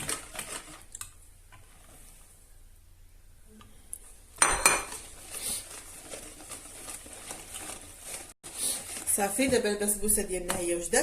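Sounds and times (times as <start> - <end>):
batter being stirred: 4.4 - 11.0.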